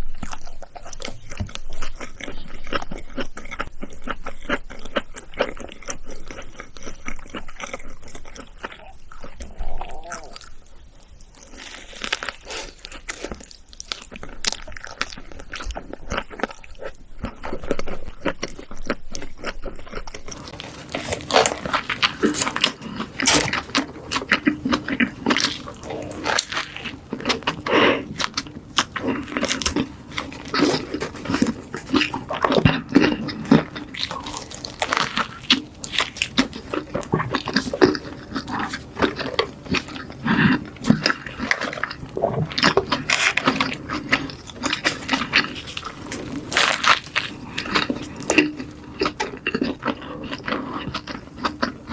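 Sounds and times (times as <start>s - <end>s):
chewing and crunching food: 0.0s - 51.9s.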